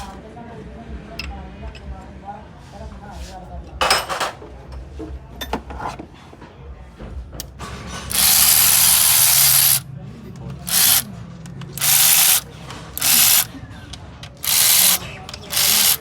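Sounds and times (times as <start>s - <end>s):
compressed-air tool hissing blasts: 11.8s - 12.4s, 13.0s - 13.5s, 14.4s - 16.0s.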